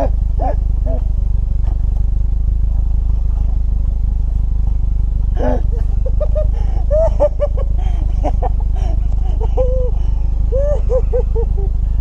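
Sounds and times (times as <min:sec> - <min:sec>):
low rumble: 0:00.0 - 0:12.0
high-pitched laughter: 0:05.4 - 0:11.9.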